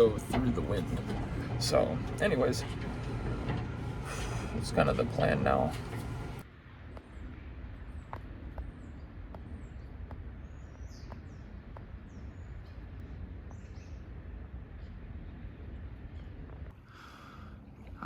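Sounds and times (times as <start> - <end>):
steady low rumble: 0.0 - 16.7
small birds chirping: 8.0 - 16.4.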